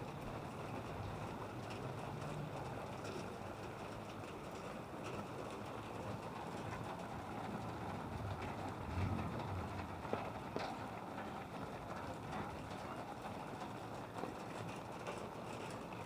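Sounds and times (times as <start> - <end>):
steady outdoor noise: 0.0 - 16.0
low rumble: 8.1 - 10.2.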